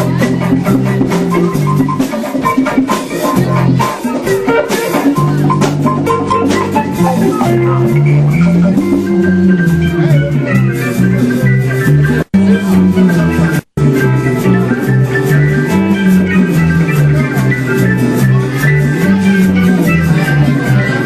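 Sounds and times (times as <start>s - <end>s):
shaker percussion: 0.0s - 9.6s
band instrumental jam: 0.0s - 21.0s
drums: 0.0s - 21.0s
walking bass line: 0.0s - 21.0s.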